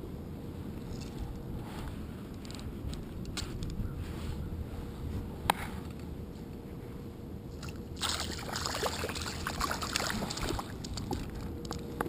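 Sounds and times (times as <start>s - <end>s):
water splashing and sloshing: 7.5s - 11.5s.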